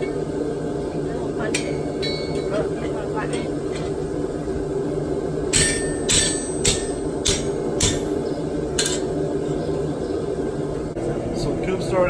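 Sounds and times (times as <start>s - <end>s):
low hum: 0.0s - 12.0s
hammer striking steel on anvil: 1.6s - 2.5s, 5.5s - 8.2s, 8.8s - 9.1s.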